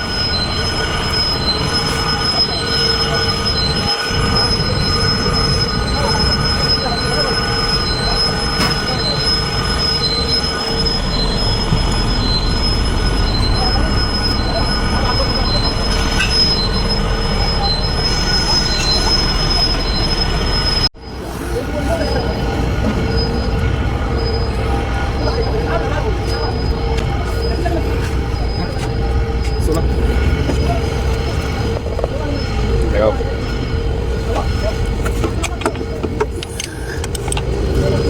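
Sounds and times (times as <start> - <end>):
machine whining over rumble: 0.0 - 38.0
pulsing high tone: 0.0 - 38.0.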